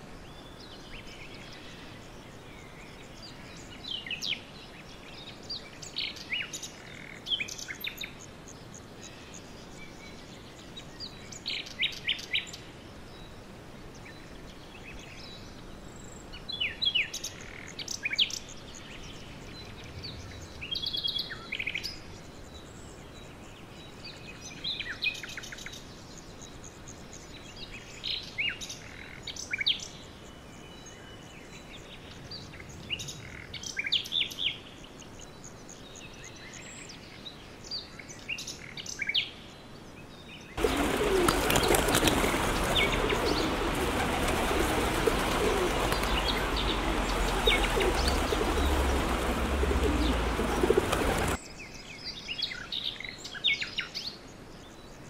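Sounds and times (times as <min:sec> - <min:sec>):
background hiss: 0:00.0 - 0:55.0
small birds chirping: 0:14.0 - 0:55.0.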